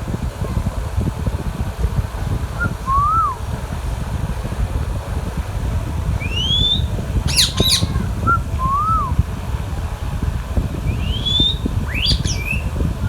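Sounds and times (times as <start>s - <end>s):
low rumble: 0.0s - 13.0s
parrot whistling: 2.6s - 3.4s, 6.2s - 9.2s, 10.9s - 12.9s
parrot screeching: 6.6s - 8.0s.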